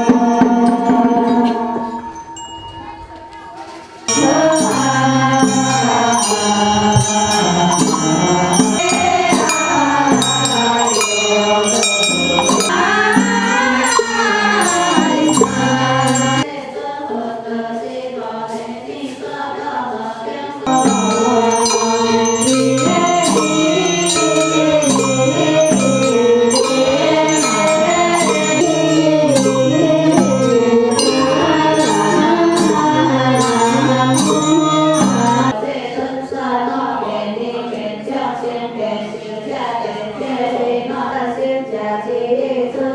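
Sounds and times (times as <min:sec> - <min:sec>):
light percussion beat: 0:00.0 - 0:16.5, 0:20.7 - 0:35.6
voices chanting in unison: 0:00.0 - 0:42.9.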